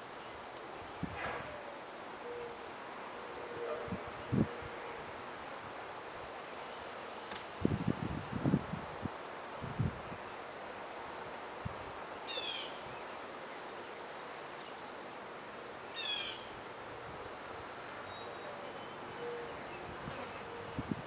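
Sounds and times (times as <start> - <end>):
background hiss: 0.0 - 21.0
bird calling: 1.5 - 4.3, 12.3 - 12.9, 15.9 - 16.6, 18.0 - 20.8.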